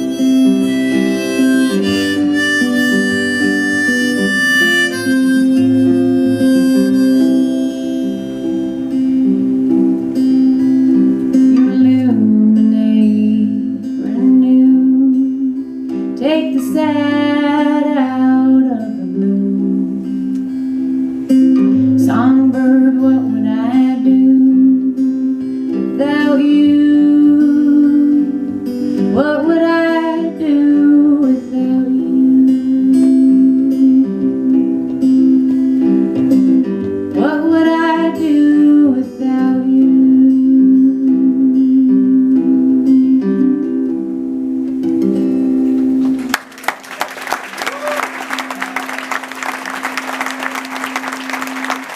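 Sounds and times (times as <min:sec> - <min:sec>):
lead guitar bending notes: 0:00.0 - 0:16.2
strummed acoustic guitar: 0:00.0 - 0:46.4.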